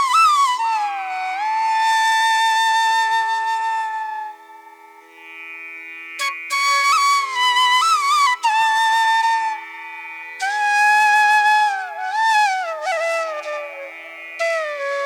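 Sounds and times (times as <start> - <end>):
sliding melody of held notes: 11.4 - 15.0.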